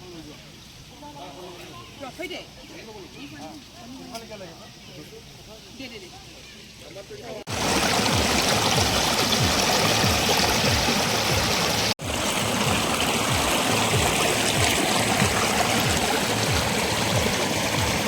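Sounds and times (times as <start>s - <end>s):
stream flowing over rocks: 7.5s - 18.0s.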